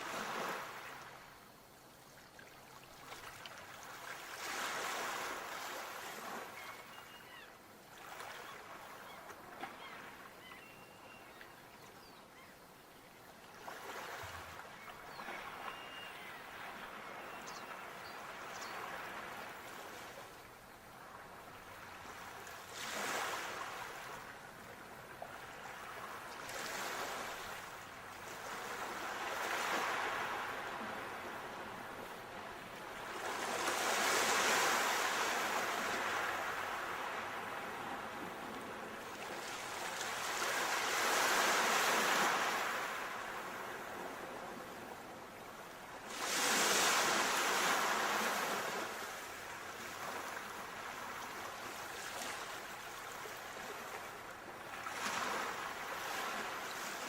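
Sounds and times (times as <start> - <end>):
sea waves washing in: 46.0 - 50.8.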